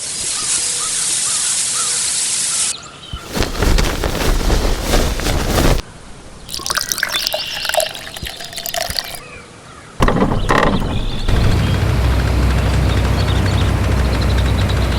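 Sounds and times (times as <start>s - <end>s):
liquid splashing and dripping: 6.4s - 9.2s.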